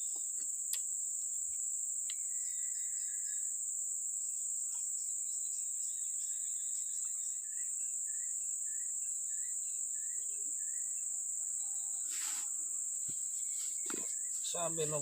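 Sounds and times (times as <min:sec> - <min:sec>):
insect chorus: 0:00.0 - 0:15.0
rustle: 0:10.4 - 0:15.0.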